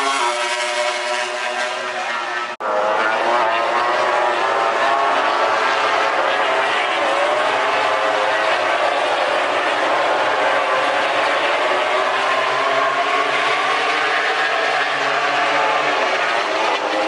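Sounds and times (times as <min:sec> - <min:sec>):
racing motorcycle engines at high revs: 0:00.0 - 0:17.0.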